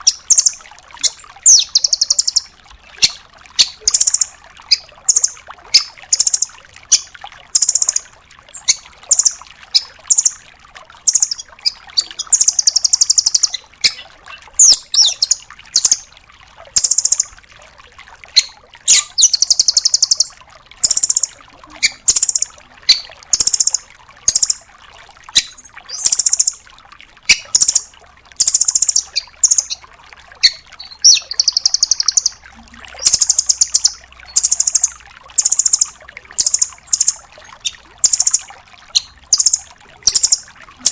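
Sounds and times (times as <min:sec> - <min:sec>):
bird trilling: 0:00.0 - 0:10.4, 0:11.1 - 0:16.1, 0:18.4 - 0:24.6, 0:30.4 - 0:32.4, 0:33.0 - 0:40.9.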